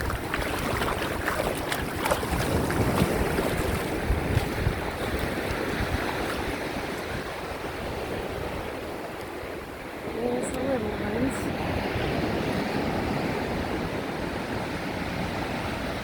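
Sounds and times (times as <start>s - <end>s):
light water splashes: 0.0s - 12.4s
small waves in shallow surf: 0.0s - 16.0s
wind buffeting microphone: 0.0s - 16.0s.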